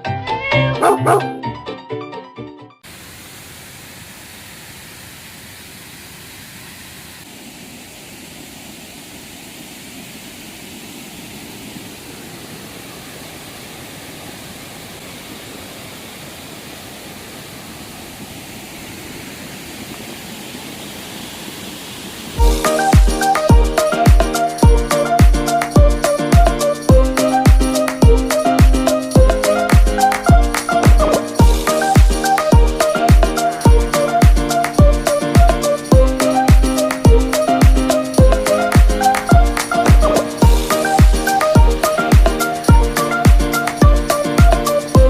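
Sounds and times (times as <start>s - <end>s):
background music: 0.0s - 2.8s, 22.4s - 45.0s
river water flowing: 2.8s - 45.0s.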